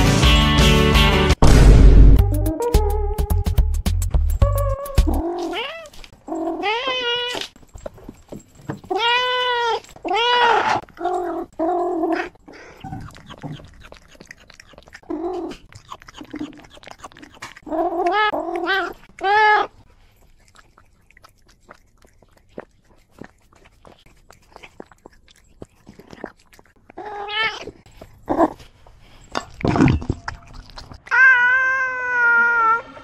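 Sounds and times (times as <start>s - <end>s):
cat meowing: 5.0s - 5.9s, 8.9s - 10.8s, 31.0s - 32.9s
cat chewing clicks: 13.0s - 17.7s, 20.2s - 26.8s.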